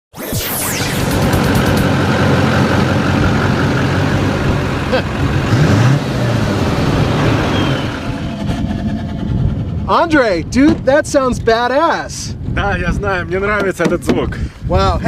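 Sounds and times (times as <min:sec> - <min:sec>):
engine revving: 0:00.2 - 0:10.6
diesel engine idling: 0:01.8 - 0:10.5.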